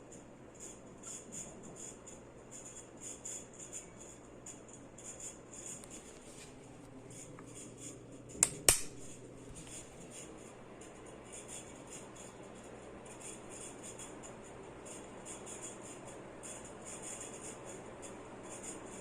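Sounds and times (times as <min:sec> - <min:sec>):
ceiling fan humming: 0:00.0 - 0:19.0
sharp clicks: 0:08.4 - 0:09.0.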